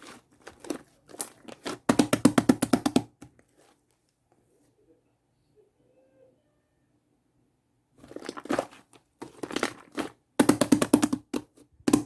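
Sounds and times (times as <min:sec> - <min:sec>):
slime crackling and popping: 0:08.1 - 0:12.0.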